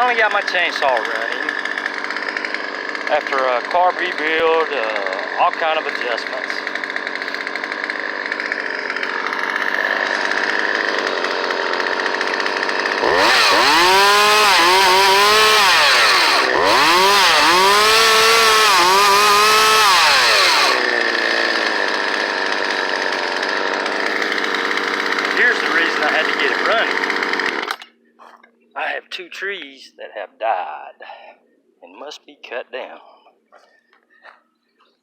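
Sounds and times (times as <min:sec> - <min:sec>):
chainsaw engine idling and revving: 0:00.0 - 0:27.9.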